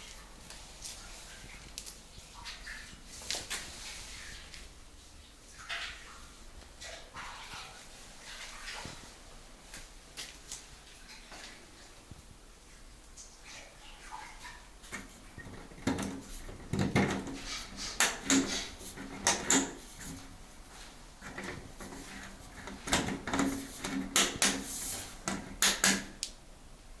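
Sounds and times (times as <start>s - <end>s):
hard parts knocking and clattering: 14.9s - 20.2s, 21.2s - 26.1s.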